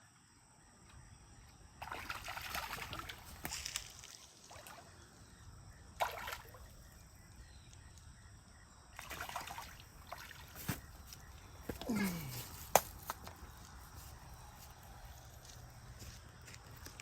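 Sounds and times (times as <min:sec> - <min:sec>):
water splashing and sloshing: 0:01.8 - 0:05.1, 0:06.0 - 0:07.0, 0:09.0 - 0:12.0.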